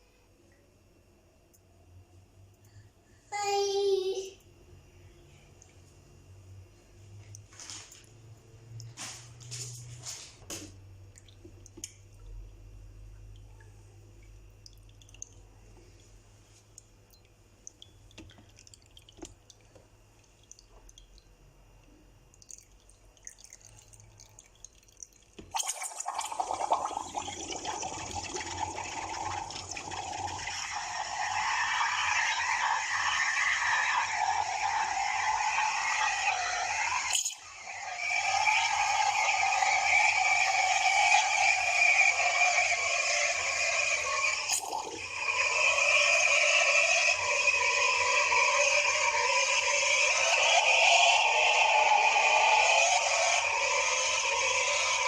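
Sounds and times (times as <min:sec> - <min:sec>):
faint drips and clicks: 0:05.5 - 0:06.0, 0:07.1 - 0:09.9, 0:10.5 - 0:40.2
espresso machine humming: 0:25.8 - 0:55.0
steam wand hissing: 0:25.8 - 0:55.0.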